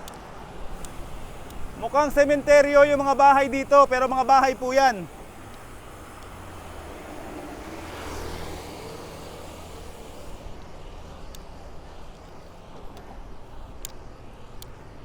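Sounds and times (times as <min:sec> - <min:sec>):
road and wind noise: 0:00.0 - 0:15.0
motor vehicle passing: 0:00.5 - 0:12.0.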